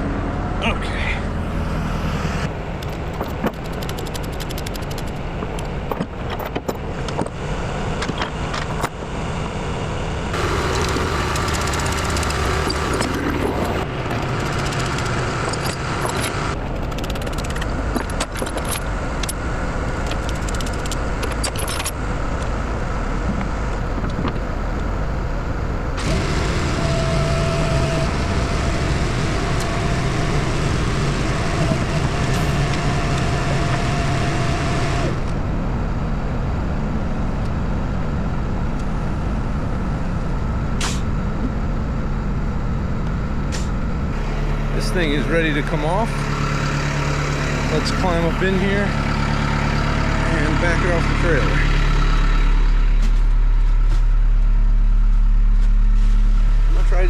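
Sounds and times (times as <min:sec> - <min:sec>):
diesel engine idling: 0:00.0 - 0:57.0
metallic clinks and rattles: 0:20.1 - 0:22.0.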